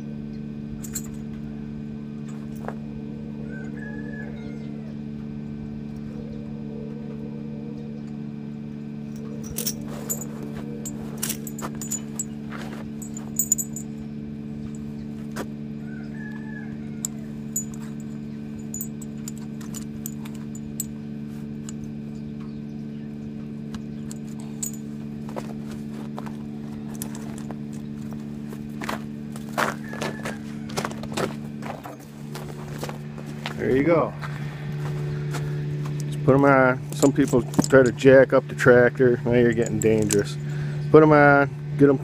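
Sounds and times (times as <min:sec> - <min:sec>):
steady low hum: 0:00.0 - 0:42.0
tire chain links clinking: 0:00.8 - 0:01.4, 0:09.1 - 0:15.2, 0:17.0 - 0:22.1, 0:23.8 - 0:41.3.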